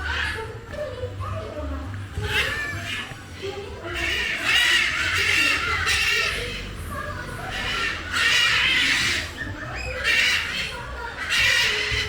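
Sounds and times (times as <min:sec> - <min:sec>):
bird calling harshly: 0:03.8 - 0:06.8, 0:07.4 - 0:12.0.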